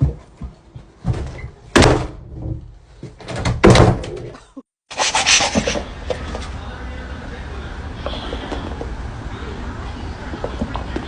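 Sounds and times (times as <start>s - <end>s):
door banging: 1.1s - 4.3s.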